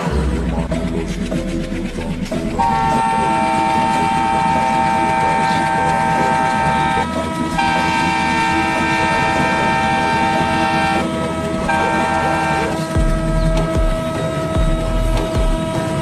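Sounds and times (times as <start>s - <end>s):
deep rumble: 0.0s - 7.8s
locomotive horn blasts: 2.5s - 16.0s.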